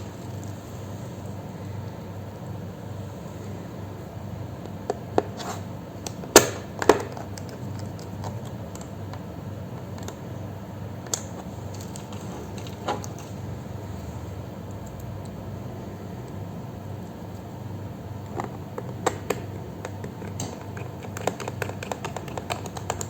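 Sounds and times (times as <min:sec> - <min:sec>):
steady low hum: 0:00.0 - 0:23.0
laptop parts clicking: 0:06.0 - 0:09.2, 0:18.3 - 0:23.0.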